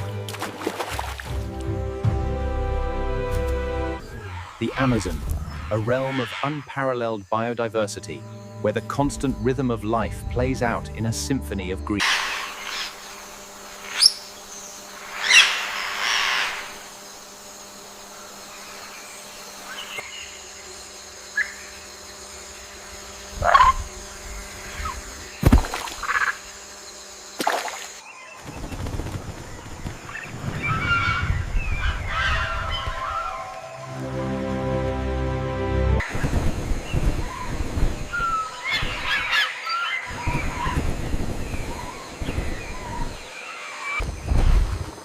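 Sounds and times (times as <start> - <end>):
birds chirping: 3.7 - 35.3, 36.0 - 44.4
bird calls: 4.0 - 10.7, 11.9 - 17.0, 23.3 - 34.0, 36.0 - 44.4.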